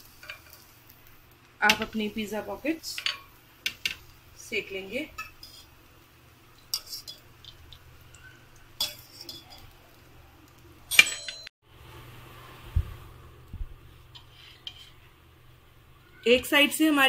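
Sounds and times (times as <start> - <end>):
kitchen utensils clinking: 6.6 - 10.0, 10.9 - 11.5.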